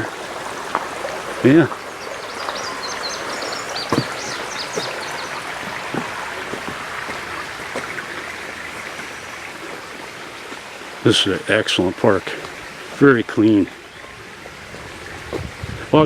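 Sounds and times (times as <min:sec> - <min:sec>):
spring water rushing: 0:00.0 - 0:16.0
small bird chirping: 0:01.7 - 0:05.5.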